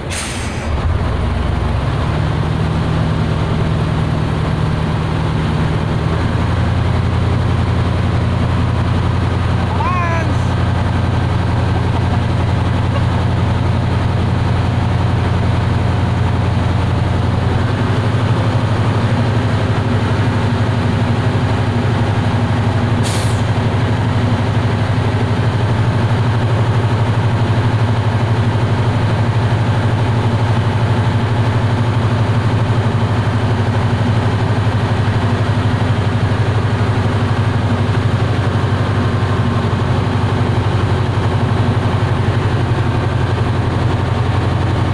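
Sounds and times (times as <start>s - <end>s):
heavy engine humming: 0.0s - 44.9s
short hiss: 0.1s - 0.7s.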